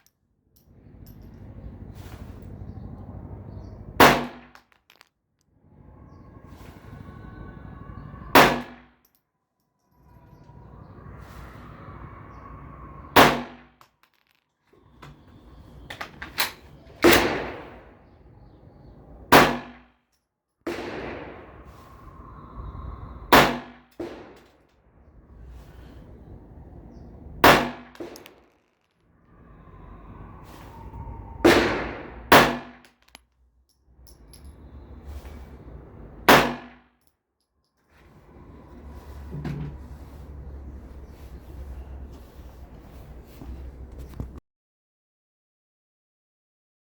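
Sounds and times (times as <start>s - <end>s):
pistol shots: 4.0s - 4.6s, 19.3s - 19.8s, 23.3s - 24.4s, 27.4s - 28.4s, 31.5s - 32.8s, 36.3s - 36.8s.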